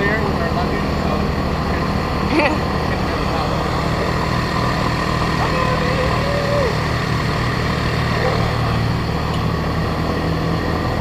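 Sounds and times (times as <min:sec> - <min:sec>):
motorbike engine running: 0:00.0 - 0:11.0.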